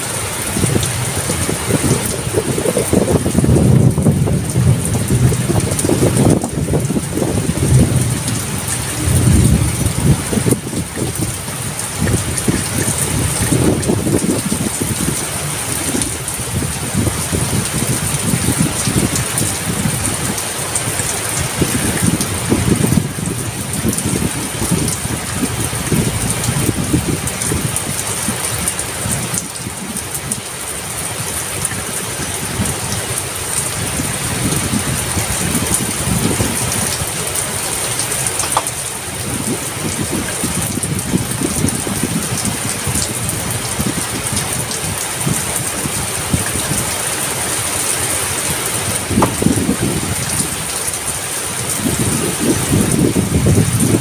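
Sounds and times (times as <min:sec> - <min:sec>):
heavy rain pouring: 0:00.0 - 0:54.0
low rumble: 0:00.8 - 0:17.9.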